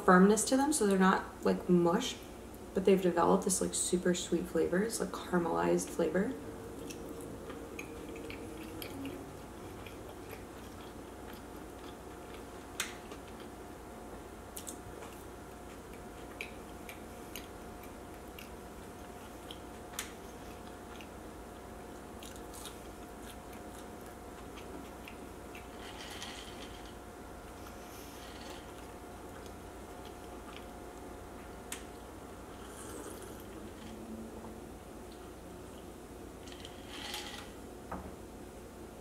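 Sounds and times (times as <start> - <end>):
faint hum: 0.0 - 39.0
person chewing: 6.7 - 13.7, 14.5 - 34.0.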